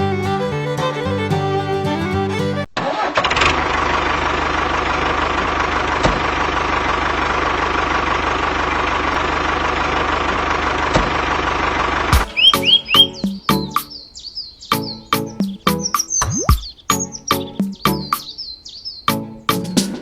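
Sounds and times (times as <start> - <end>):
music: 0.0 - 2.7, 12.2 - 14.0, 14.7 - 16.2, 16.9 - 18.3, 19.1 - 20.0.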